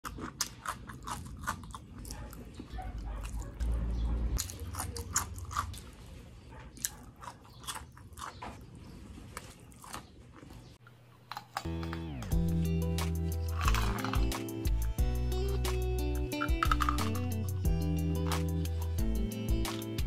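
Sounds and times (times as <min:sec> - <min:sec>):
crisp crunching and wet chewing: 0:00.0 - 0:03.8, 0:04.4 - 0:12.2, 0:13.3 - 0:15.0, 0:16.0 - 0:17.4.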